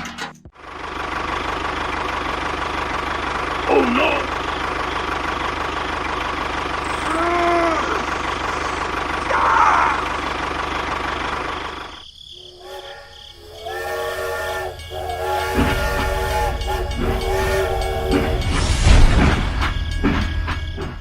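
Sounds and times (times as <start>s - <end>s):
small motor running: 4.4s - 18.0s
horn or whistle chord: 12.4s - 19.6s.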